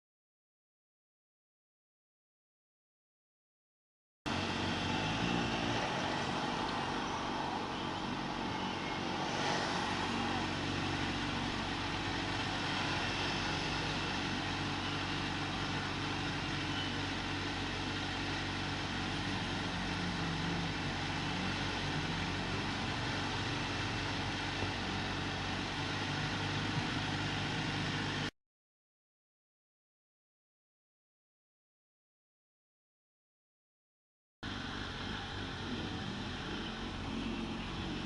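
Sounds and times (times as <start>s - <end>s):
road noise: 4.3s - 28.3s, 34.4s - 38.0s
motorcycle engine running: 9.8s - 28.3s, 34.5s - 38.0s.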